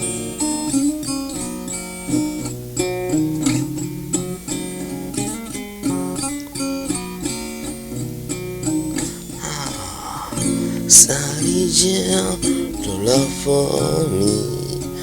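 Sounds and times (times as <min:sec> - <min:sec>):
rock guitars playing: 0:00.0 - 0:15.0.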